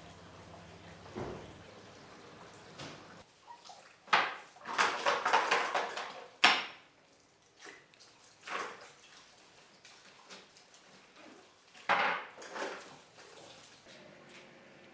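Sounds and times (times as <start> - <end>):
rustling or splashing: 0.0 - 14.4.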